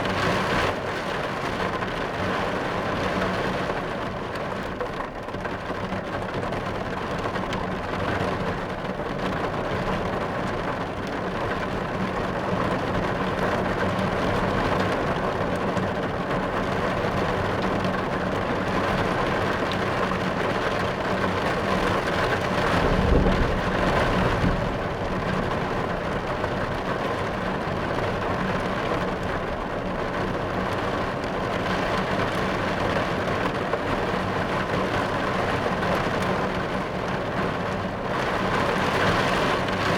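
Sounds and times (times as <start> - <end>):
heavy rain drumming on car roof: 0.0 - 39.9
low roll of thunder: 21.9 - 28.2.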